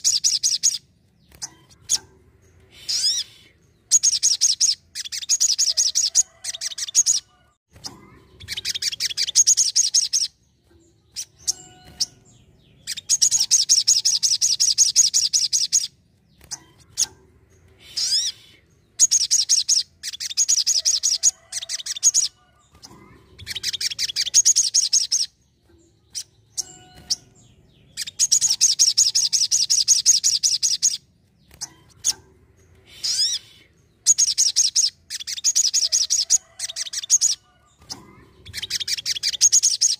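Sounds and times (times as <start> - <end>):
sunbird chattering trills: 11.1 - 39.9.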